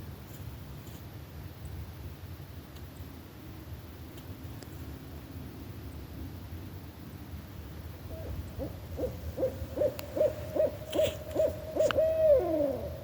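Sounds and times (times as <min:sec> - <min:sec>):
owl hooting: 0:08.1 - 0:13.0.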